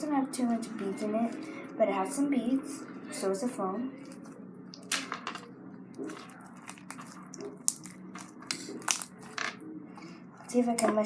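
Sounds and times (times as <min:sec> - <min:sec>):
foam slime crackling and squishing: 0:06.0 - 0:09.4.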